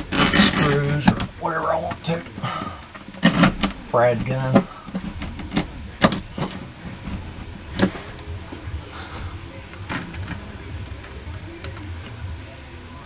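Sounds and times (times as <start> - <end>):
sharp clicks on paneling: 0.0 - 12.6
low steady rumble: 0.0 - 13.0.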